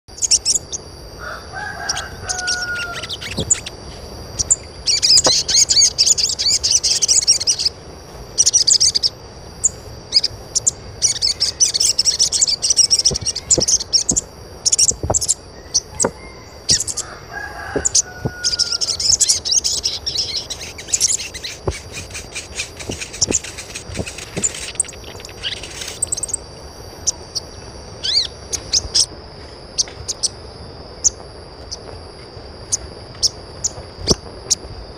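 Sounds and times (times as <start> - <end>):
birds chirping in high bursts: 0.1 - 29.1, 29.7 - 34.7
steady high-pitched tone: 0.1 - 34.9
lower longer bird call: 1.2 - 3.7.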